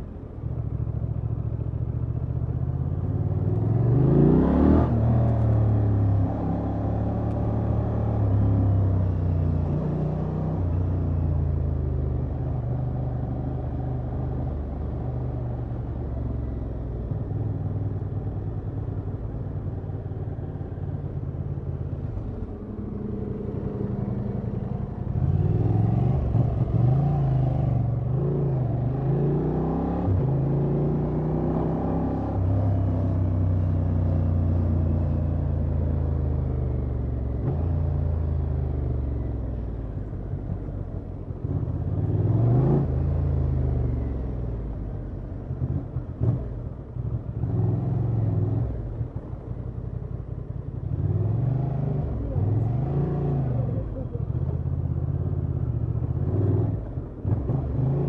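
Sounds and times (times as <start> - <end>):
motorcycle engine revving: 50.8 - 58.0.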